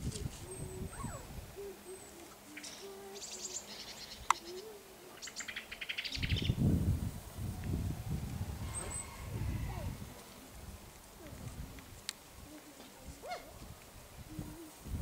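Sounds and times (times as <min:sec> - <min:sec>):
low rumble: 0:06.6 - 0:11.7
bird low short notes: 0:08.4 - 0:10.2
bird rapid high trills: 0:08.5 - 0:10.0.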